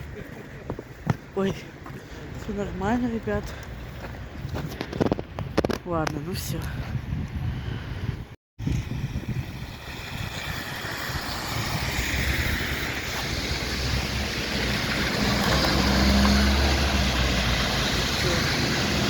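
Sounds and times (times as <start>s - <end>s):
rushing road noise: 8.6s - 19.0s.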